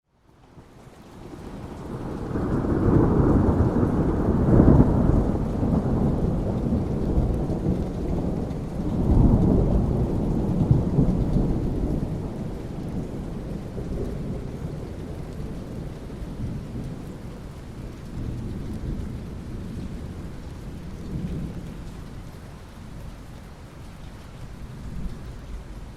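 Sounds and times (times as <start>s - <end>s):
steady rain: 0.1s - 25.9s
rolling thunder: 1.4s - 22.1s.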